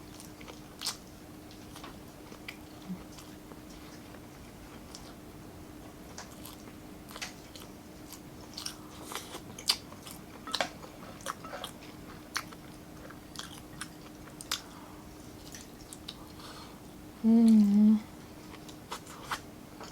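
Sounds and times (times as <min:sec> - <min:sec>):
faint steady hum: 0:00.0 - 0:19.9
person chewing food: 0:00.0 - 0:19.9.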